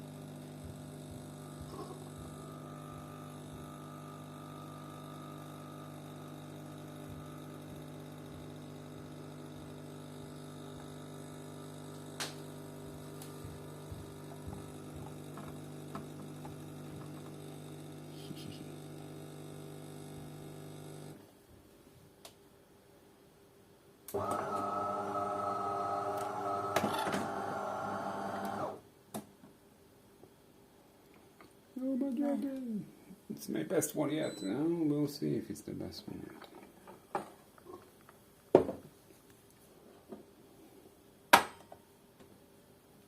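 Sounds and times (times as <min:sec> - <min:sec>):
coffee machine pump humming: 0:00.0 - 0:21.2, 0:24.1 - 0:28.8.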